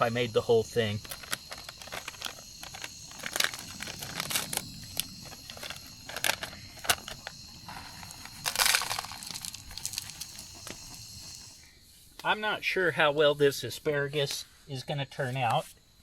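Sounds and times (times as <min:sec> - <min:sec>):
plastic food package rustling: 0:00.8 - 0:10.4.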